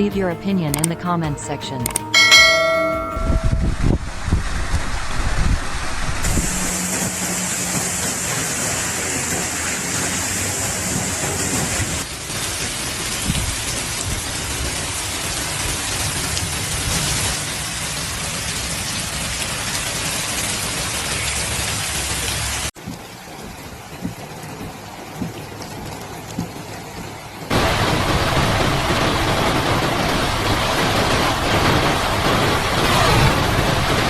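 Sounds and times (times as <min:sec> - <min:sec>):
heavy rain pouring: 0:01.9 - 0:34.0
low rumbling: 0:02.1 - 0:12.2.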